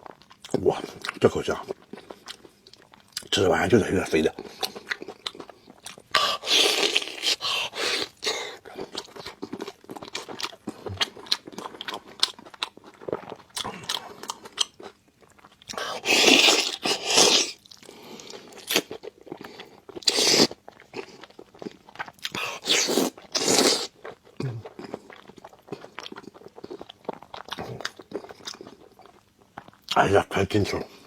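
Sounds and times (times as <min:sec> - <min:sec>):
loud bites or slurps: 0:15.9 - 0:17.6.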